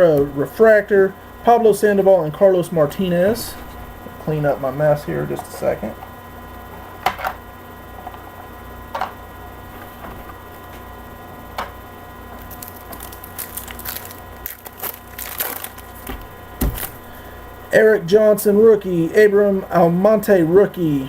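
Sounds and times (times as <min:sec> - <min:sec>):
card pack wrappers crinkling: 0:12.3 - 0:17.2.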